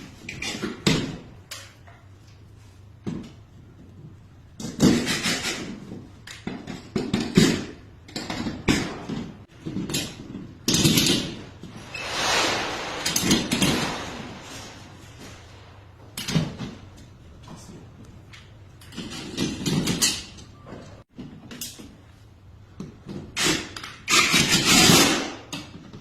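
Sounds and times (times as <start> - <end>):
short rushing noise: 11.5 - 16.1.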